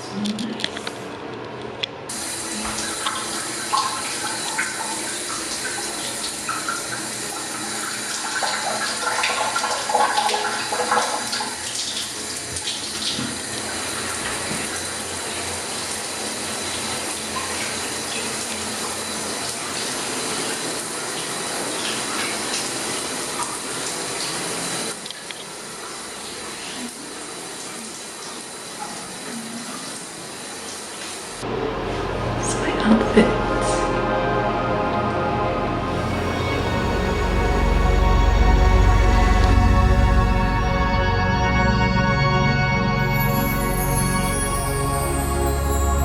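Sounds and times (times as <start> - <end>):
shower water spraying: 2.1 - 33.9.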